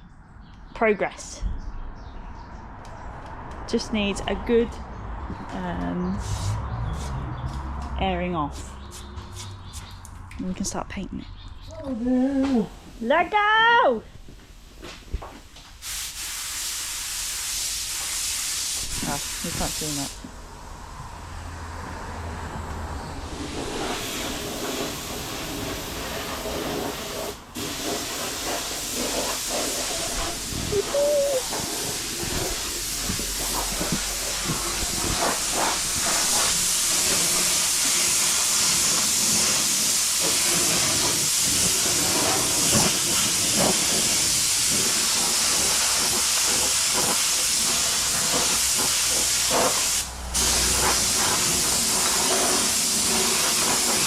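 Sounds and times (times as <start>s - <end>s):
compressed-air gun hissing: 15.8s - 20.1s, 26.4s - 54.0s.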